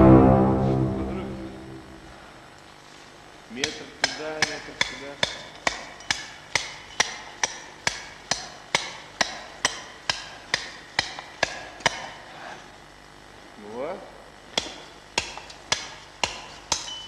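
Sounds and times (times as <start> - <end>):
hand tool striking metal: 3.6 - 12.2, 14.6 - 17.0.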